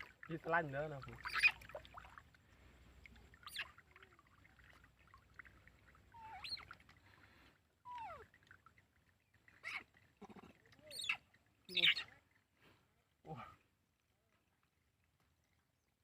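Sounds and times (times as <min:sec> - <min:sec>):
baby monkey squeaking: 0:01.2 - 0:01.6, 0:06.2 - 0:06.6, 0:10.9 - 0:12.1.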